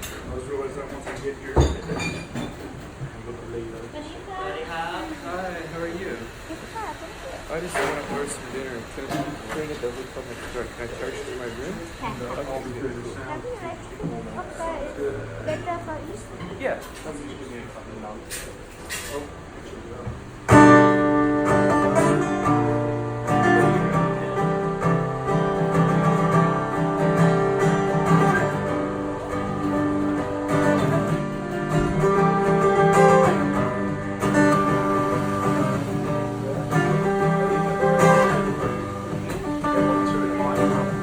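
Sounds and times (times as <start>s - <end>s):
acoustic guitar strummed: 20.3s - 41.0s.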